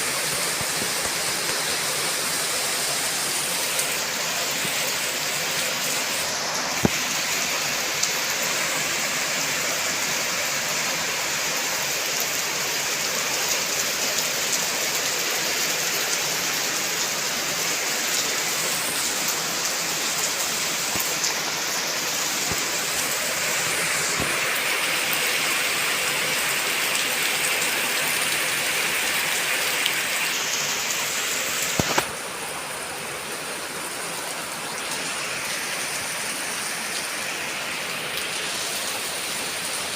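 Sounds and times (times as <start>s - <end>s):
heavy rain hiss: 0.0s - 39.9s
raindrops ticking on something: 31.6s - 32.3s.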